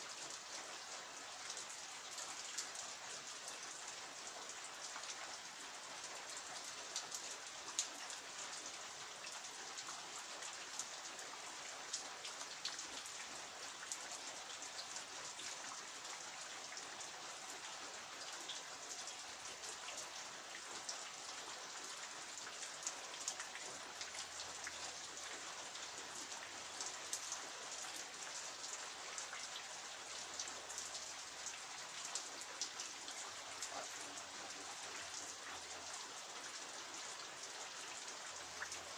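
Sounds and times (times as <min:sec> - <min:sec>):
rain drops pattering: 0:00.0 - 0:38.9.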